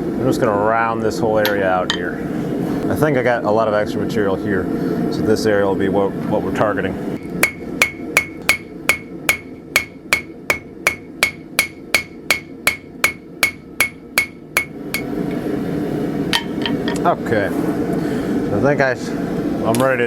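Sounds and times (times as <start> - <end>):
hammer striking steel on anvil: 7.4 - 15.1, 16.4 - 17.0.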